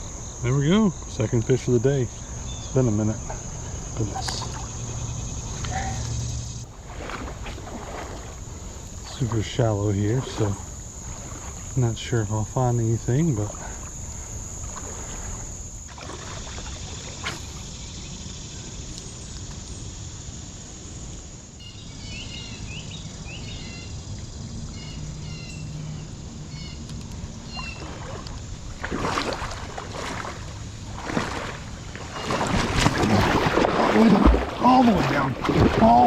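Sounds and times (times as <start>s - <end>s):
creek water flowing: 0.0s - 17.8s, 26.9s - 36.0s
insect buzzing: 0.0s - 36.0s
water splashing: 0.7s - 17.7s, 27.5s - 36.0s
bird chirping: 2.1s - 2.9s, 24.7s - 26.9s.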